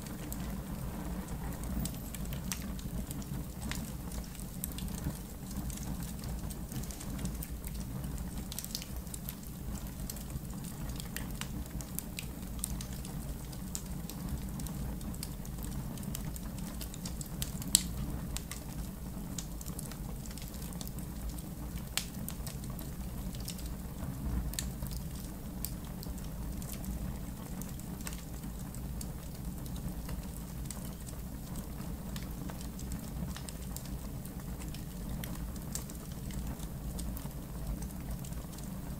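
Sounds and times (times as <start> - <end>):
campfire crackling and popping: 0.0 - 38.9
low fire rumble: 0.0 - 38.9.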